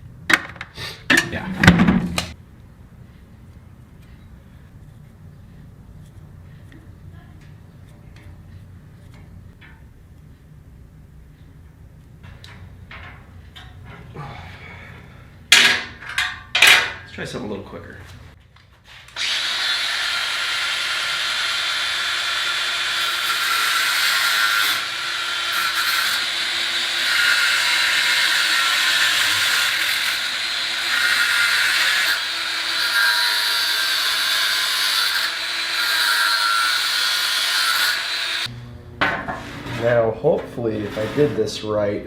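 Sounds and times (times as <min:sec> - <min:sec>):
power tool cutting steel wire: 0:19.2 - 0:38.5.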